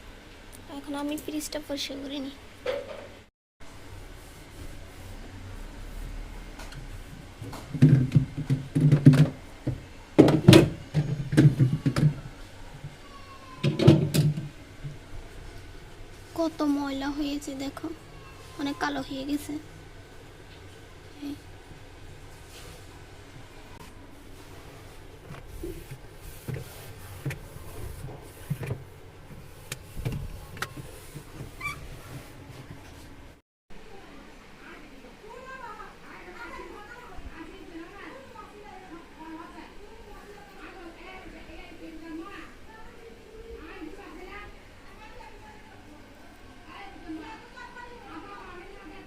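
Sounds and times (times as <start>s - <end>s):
hollow knocks and thuds: 7.4s - 12.3s.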